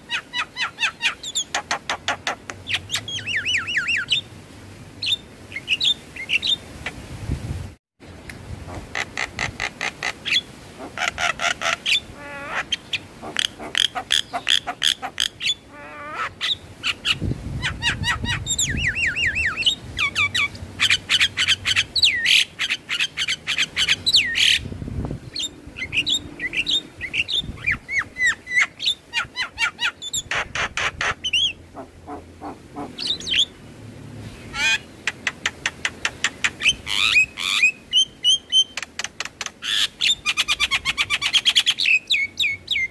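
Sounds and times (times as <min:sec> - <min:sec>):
bird chattering and whistling: 0:00.1 - 0:04.2, 0:09.0 - 0:24.6, 0:25.3 - 0:33.5.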